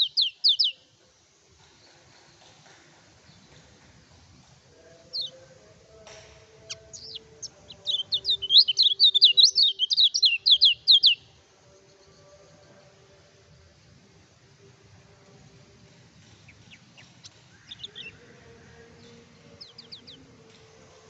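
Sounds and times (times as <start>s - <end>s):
bird singing sharp notes: 0.0s - 0.8s, 6.5s - 11.3s, 16.4s - 18.3s
high bird chirps: 0.0s - 0.8s, 6.6s - 11.2s, 16.5s - 18.2s, 19.6s - 20.2s.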